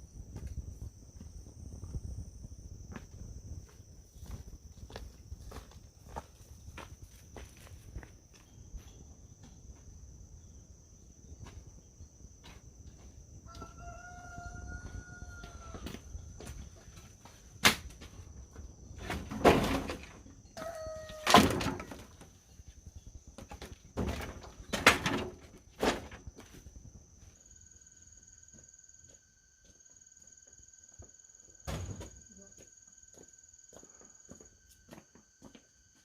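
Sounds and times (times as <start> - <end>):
high insect drone: 0.0 - 36.0
rooster crowing: 13.4 - 16.2, 20.6 - 21.5
sharp knocks and rustles: 16.4 - 20.5, 21.2 - 22.7, 23.4 - 26.7.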